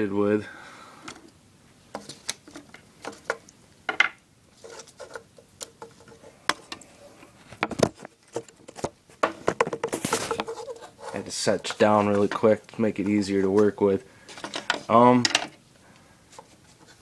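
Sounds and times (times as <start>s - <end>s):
plastic parts clicking and rattling: 14.3s - 15.6s.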